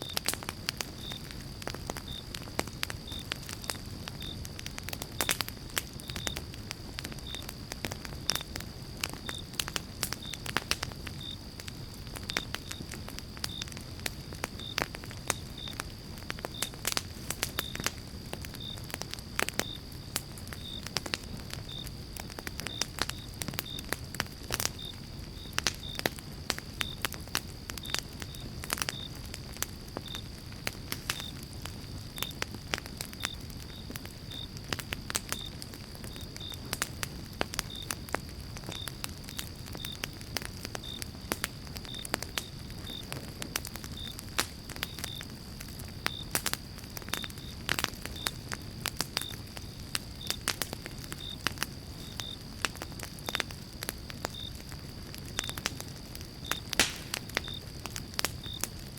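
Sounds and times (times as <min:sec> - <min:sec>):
campfire crackling and popping: 0:00.0 - 0:58.9.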